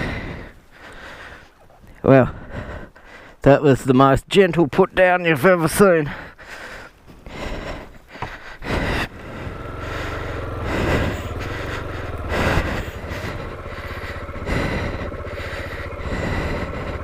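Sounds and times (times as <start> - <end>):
motorcycle engine running: 7.3 - 17.0.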